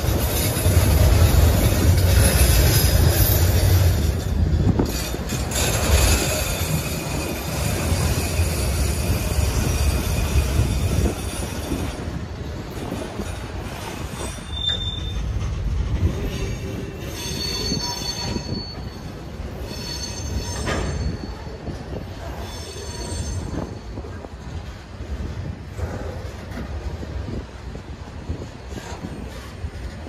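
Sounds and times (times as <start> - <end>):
freight cars rolling on rails: 0.0 - 30.0
high-pitched wheel squeal: 13.8 - 15.4, 16.4 - 21.6, 22.4 - 24.0.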